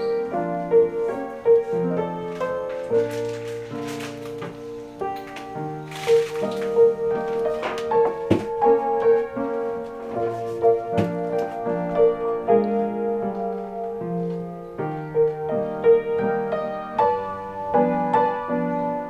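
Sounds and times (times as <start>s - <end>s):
gentle piano music: 0.0s - 19.0s
soft knocks: 1.1s - 11.7s.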